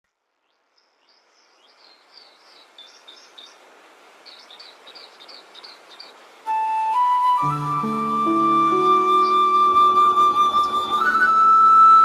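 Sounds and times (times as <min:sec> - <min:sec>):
steady outdoor hiss: 0:00.0 - 0:12.0
small birds chirping: 0:00.4 - 0:06.4.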